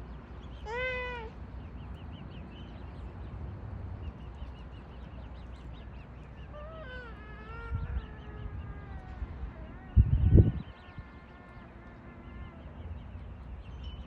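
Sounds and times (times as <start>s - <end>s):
drawn-out low bird call: 0.0s - 3.1s, 4.1s - 14.0s
birds peeping: 0.0s - 14.0s
steady low rumble: 1.3s - 14.0s.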